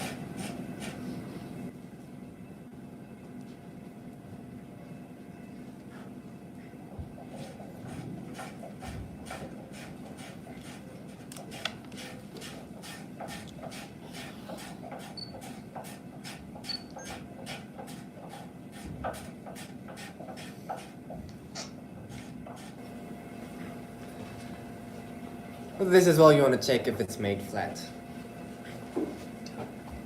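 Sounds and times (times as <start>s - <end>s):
hand plane scraping wood: 7.9s - 21.0s.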